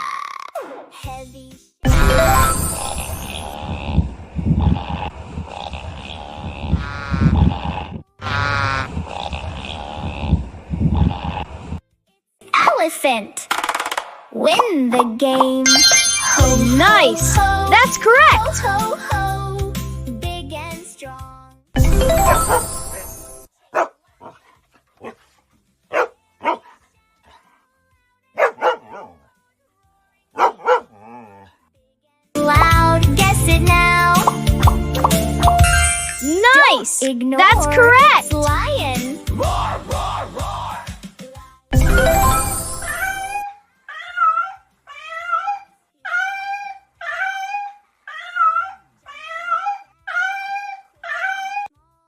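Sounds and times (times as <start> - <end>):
dog barking: 23.7 - 25.3, 25.9 - 27.5, 28.4 - 29.2, 30.4 - 31.0.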